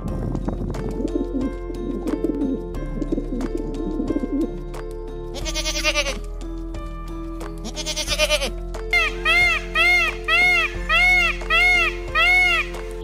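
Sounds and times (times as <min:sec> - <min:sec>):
background music: 0:00.0 - 0:13.0
goat bleating: 0:05.4 - 0:06.2, 0:07.6 - 0:08.5
pigeons cooing: 0:09.0 - 0:13.0.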